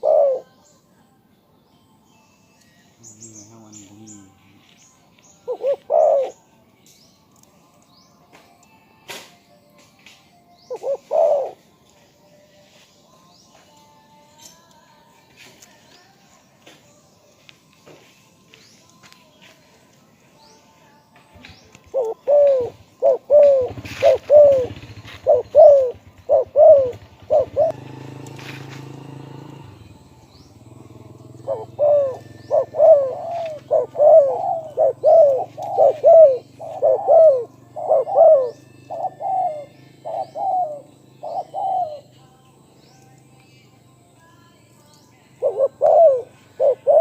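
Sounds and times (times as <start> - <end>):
dove cooing: 0.0 - 0.7, 5.4 - 6.4, 10.6 - 11.7, 21.4 - 30.0, 30.6 - 42.1, 45.4 - 47.0.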